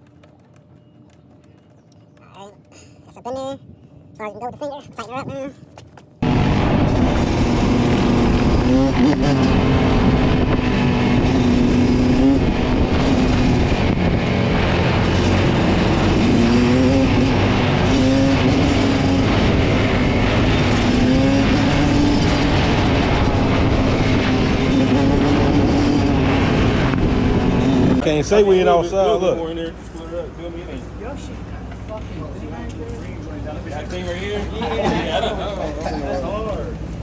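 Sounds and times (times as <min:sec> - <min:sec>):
dirt bike engine revving: 0:06.2 - 0:28.4.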